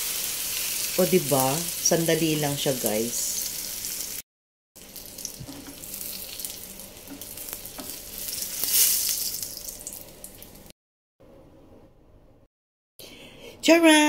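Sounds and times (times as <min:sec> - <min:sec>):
omelette sizzling in oil: 0:00.0 - 0:02.2, 0:02.8 - 0:04.2, 0:04.8 - 0:10.7.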